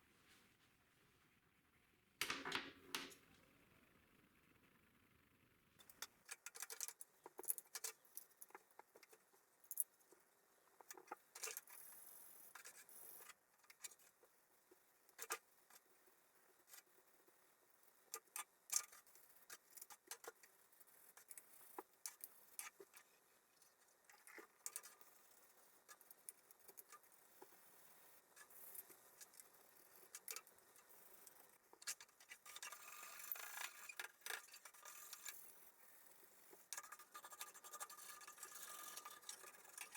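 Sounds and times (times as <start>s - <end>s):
small parts clicking and scraping: 5.8s - 14.3s, 18.1s - 39.9s.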